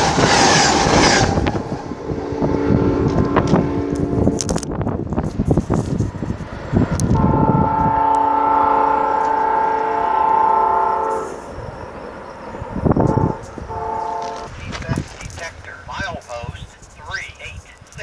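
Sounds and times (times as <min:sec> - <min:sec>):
rumbling noise: 0:00.0 - 0:08.0
locomotive air horn: 0:02.2 - 0:04.4, 0:07.1 - 0:11.4, 0:13.0 - 0:14.6.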